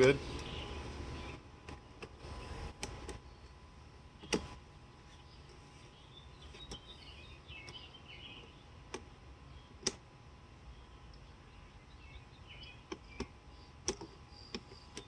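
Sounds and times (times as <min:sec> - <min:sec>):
faint bird chirps: 0:05.1 - 0:08.7, 0:10.6 - 0:15.0.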